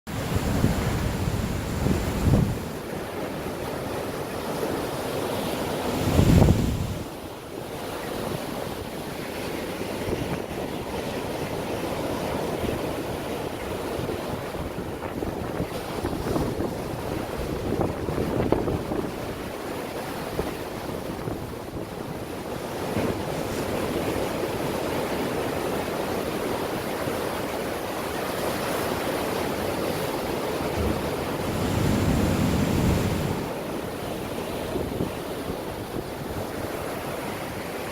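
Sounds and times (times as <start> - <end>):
wind buffeting microphone: 0.1 - 2.9, 6.0 - 7.1, 12.6 - 19.6, 29.6 - 36.9
ocean surf breaking: 0.1 - 7.1, 7.7 - 37.9.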